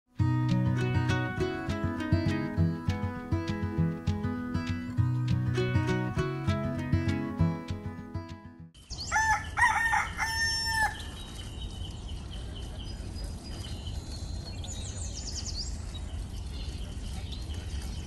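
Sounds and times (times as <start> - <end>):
rooster crowing: 9.1 - 11.1.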